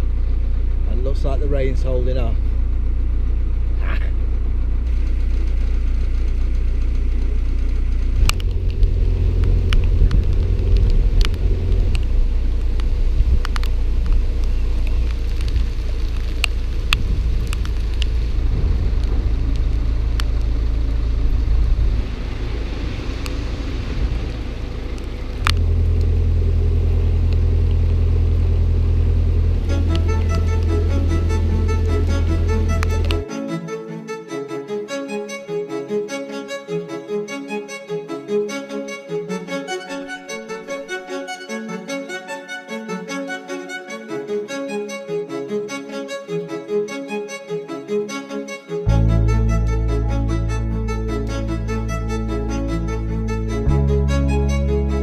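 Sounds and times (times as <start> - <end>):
boat engine humming: 0.0 - 34.9, 48.8 - 55.0.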